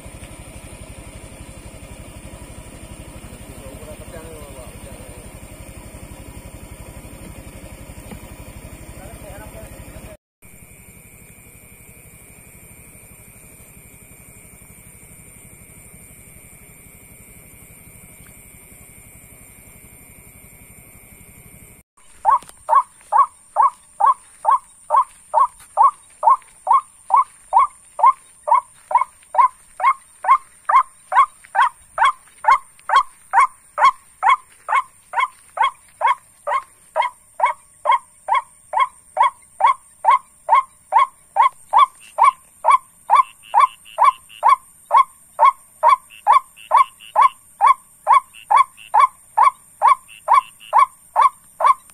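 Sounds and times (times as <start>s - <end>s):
faint electronic hum: 8.0s - 51.9s
repeated bird call note: 22.0s - 51.9s.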